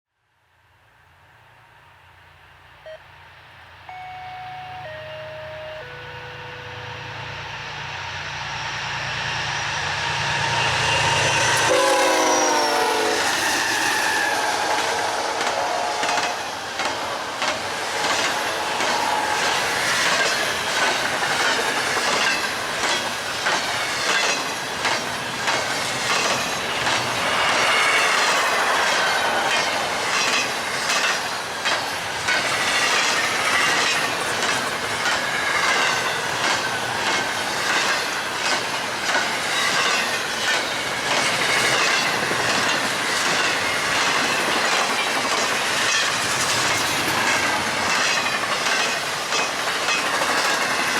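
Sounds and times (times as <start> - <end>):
train rushing past: 0.6 - 50.9
train wheels clicking: 8.8 - 50.9
train horn: 11.6 - 16.5.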